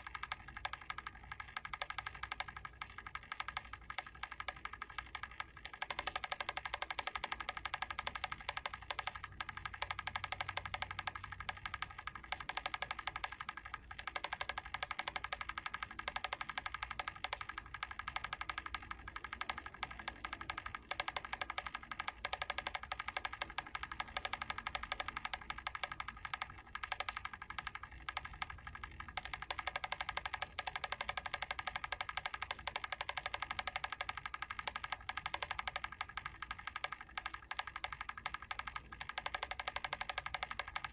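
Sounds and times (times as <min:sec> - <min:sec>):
mechanical timer ticking: 0:00.0 - 0:40.9.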